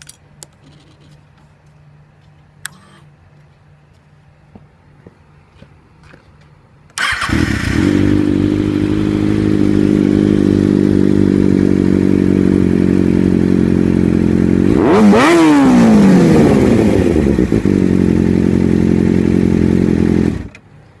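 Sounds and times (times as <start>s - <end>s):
motorcycle engine idling and revving: 7.0s - 20.7s.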